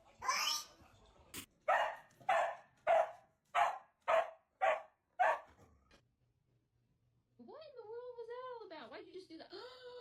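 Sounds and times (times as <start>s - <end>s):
dog barking: 1.6s - 5.6s.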